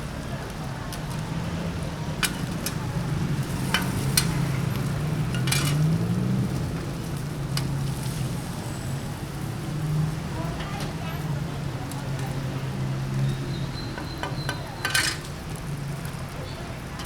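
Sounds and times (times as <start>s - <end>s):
food sizzling in a wok: 1.9s - 10.6s
metal spatula clinking on pan: 2.2s - 6.1s, 14.0s - 15.4s.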